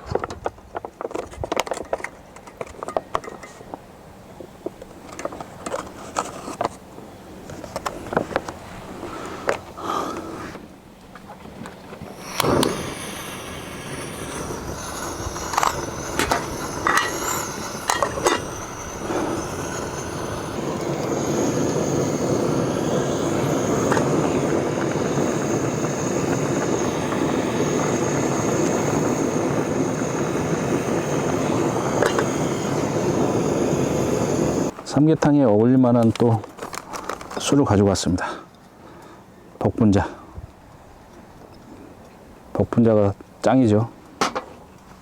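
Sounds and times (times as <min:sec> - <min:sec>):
gas stove rushing: 0:11.9 - 0:34.8.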